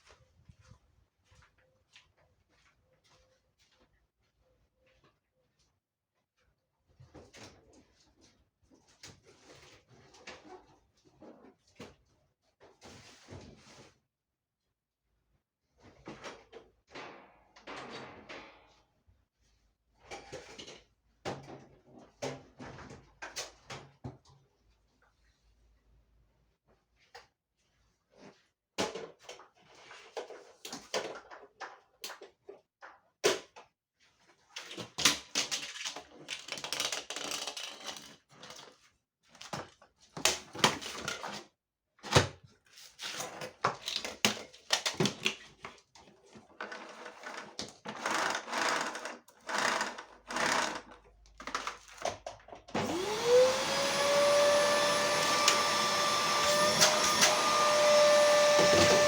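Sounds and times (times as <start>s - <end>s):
electric motor whining: 52.8s - 59.0s.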